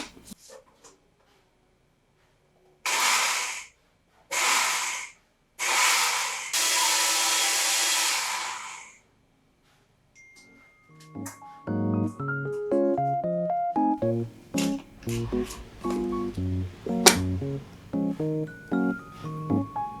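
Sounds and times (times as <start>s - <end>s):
small electric appliance running: 2.9s - 3.7s, 4.3s - 9.0s.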